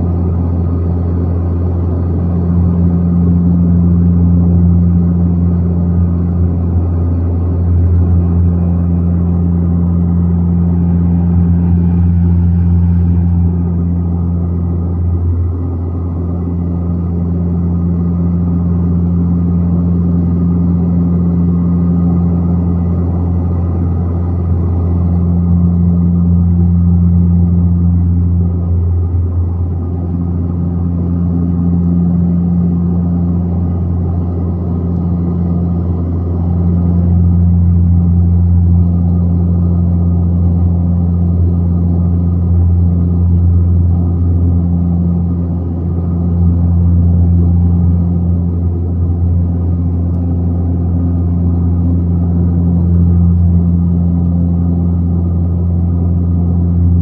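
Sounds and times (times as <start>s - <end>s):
plane engines droning in cabin: 0.0s - 57.0s.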